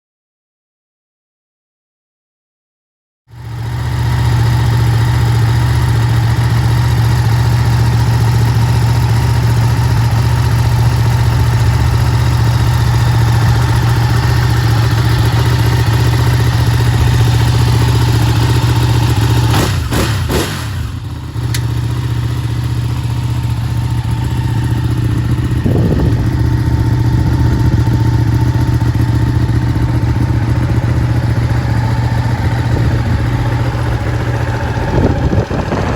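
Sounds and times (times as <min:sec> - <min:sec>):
motorcycle engine idling: 0:03.3 - 0:35.9.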